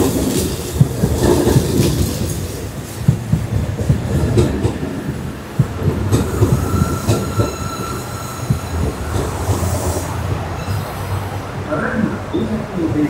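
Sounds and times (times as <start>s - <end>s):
train wheels rumbling and knocking: 0.0s - 13.0s
high wheel squeal: 6.3s - 11.4s.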